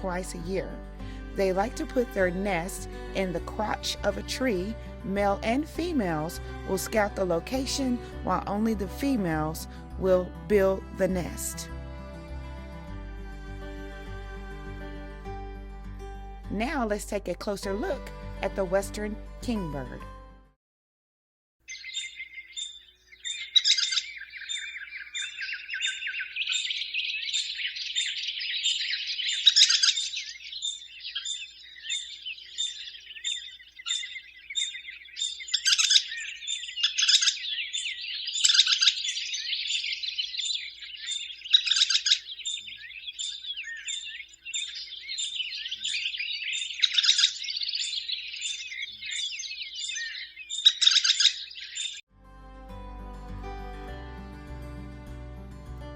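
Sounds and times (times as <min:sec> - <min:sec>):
birds chattering and twittering: 0:21.7 - 0:52.0.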